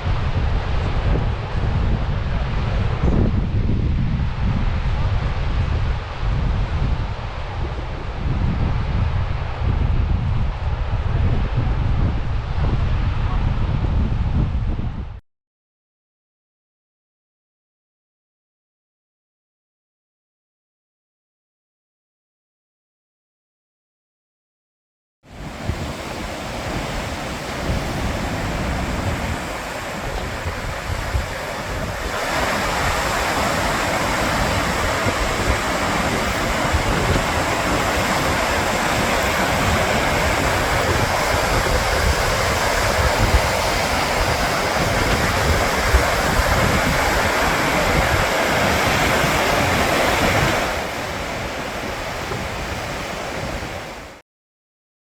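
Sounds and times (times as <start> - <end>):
wind buffeting microphone: 0.0 - 15.2, 25.3 - 54.2
waterfall roaring: 25.3 - 54.2.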